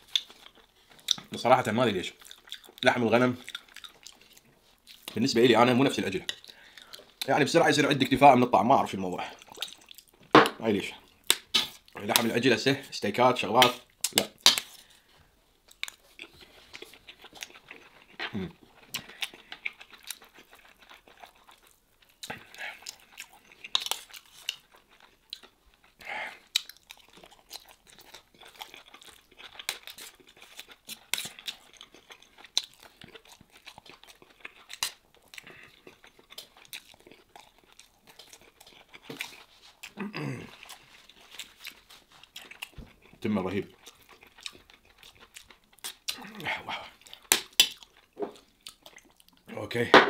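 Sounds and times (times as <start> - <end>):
man chewing food: 0.0 - 8.2, 9.1 - 10.4, 13.8 - 49.6.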